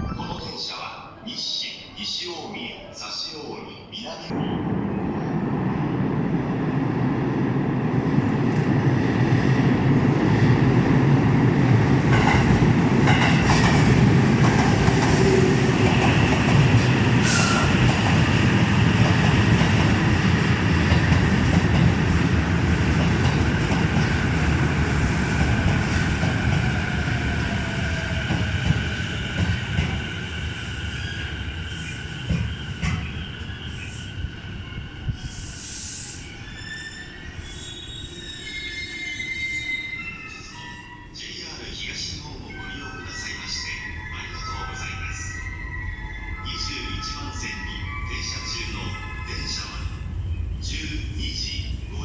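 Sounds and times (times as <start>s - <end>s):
train rumble: 4.3s - 38.4s
high-pitched train tones: 30.8s - 52.0s.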